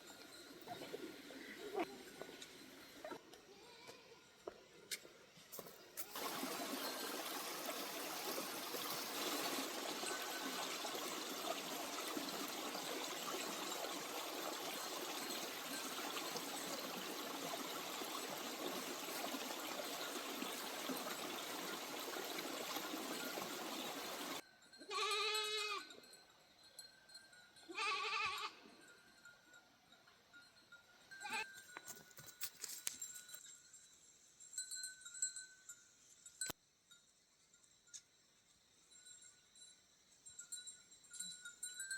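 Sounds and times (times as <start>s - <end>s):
goat bleating: 24.9s - 25.9s, 27.7s - 28.6s.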